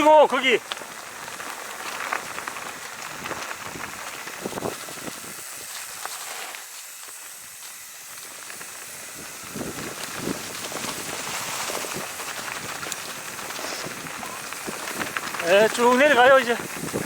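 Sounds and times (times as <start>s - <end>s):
bike tyres on gravel: 0.0s - 17.0s
bike clicks and knocks: 8.5s - 17.0s.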